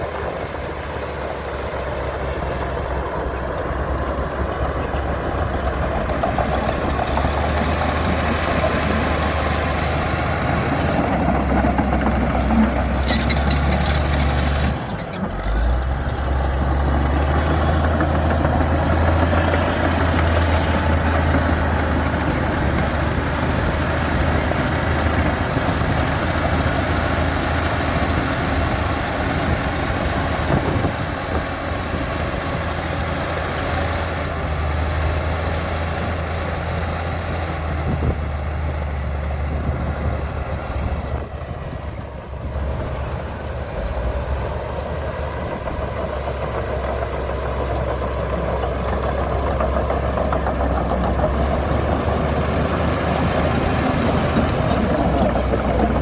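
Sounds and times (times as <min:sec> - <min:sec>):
bulldozer diesel engine drone: 0:00.0 - 0:56.0
short metallic rattle: 0:12.6 - 0:15.6.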